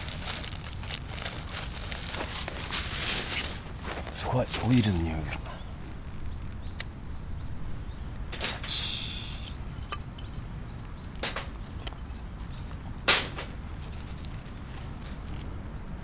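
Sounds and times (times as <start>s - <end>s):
knocks of kindling handled: 0.0s - 5.6s, 8.2s - 15.6s
short hiss: 8.4s - 9.6s.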